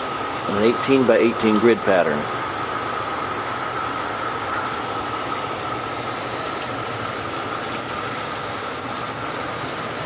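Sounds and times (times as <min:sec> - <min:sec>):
thin steady high tone: 0:00.0 - 0:06.4.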